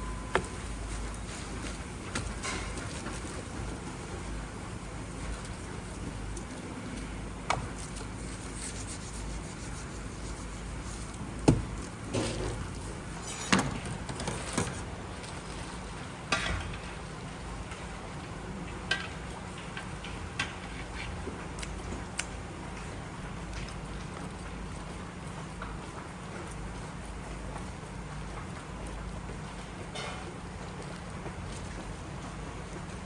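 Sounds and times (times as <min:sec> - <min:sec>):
steady background hum: 0:00.0 - 0:33.0
utensils knocking on pots and dishes: 0:11.5 - 0:12.8.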